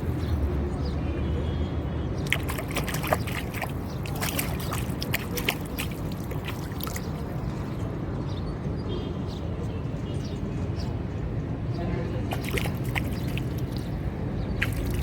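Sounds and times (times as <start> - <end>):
wind: 0.0 - 15.0
crackling splashes: 2.2 - 7.4, 12.3 - 14.0, 14.6 - 15.0
seawater sloshing and splashing: 2.2 - 7.4, 12.2 - 15.0.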